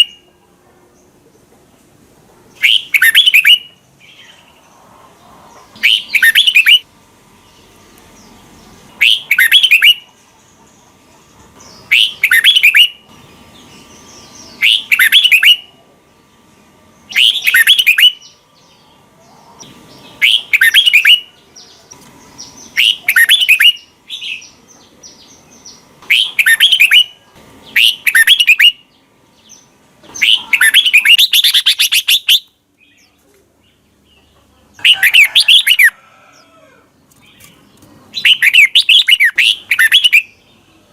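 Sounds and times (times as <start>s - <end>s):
bird singing short phrases: 5.8s - 6.8s, 26.0s - 28.9s, 30.1s - 33.8s.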